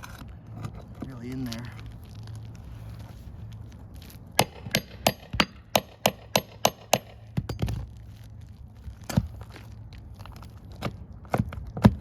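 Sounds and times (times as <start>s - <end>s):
hammer striking metal tool: 4.4s - 7.7s.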